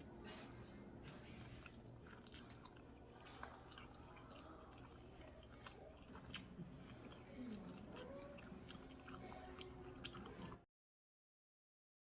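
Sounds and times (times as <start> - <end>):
chewing crispy fried chicken: 0.0 - 10.7
wet mouth clicks: 1.6 - 10.6.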